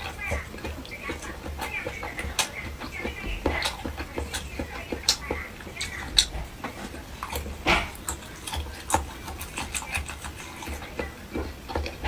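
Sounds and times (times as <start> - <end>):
lip smacks: 0.0 - 12.0
wet chewing: 0.0 - 12.0.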